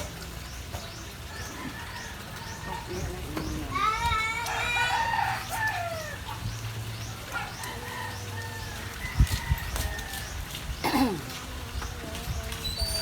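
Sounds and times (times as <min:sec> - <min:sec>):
rooster crowing: 0:03.8 - 0:06.3, 0:07.6 - 0:10.4.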